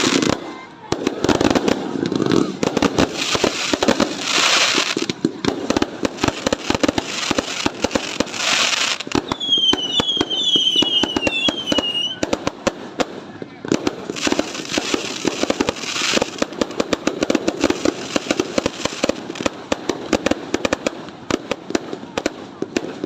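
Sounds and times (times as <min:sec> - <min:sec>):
fireworks cracking and banging: 0:00.0 - 0:23.0
high gliding whistles: 0:09.3 - 0:12.2.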